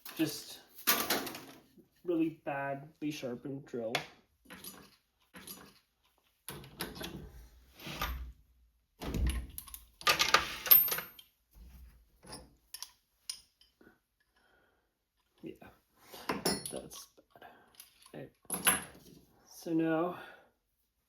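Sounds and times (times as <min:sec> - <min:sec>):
metal tools knocking and rattling: 0:04.4 - 0:05.9, 0:16.3 - 0:17.1.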